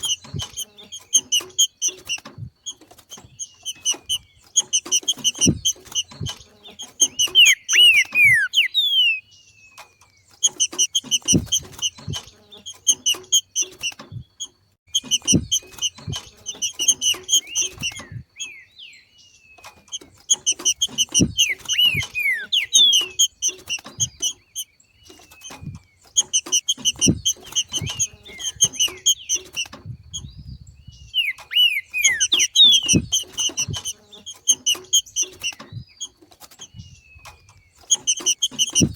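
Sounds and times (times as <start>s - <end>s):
bird chattering with whistles: 3.5s - 9.3s, 20.3s - 25.3s, 26.2s - 35.8s.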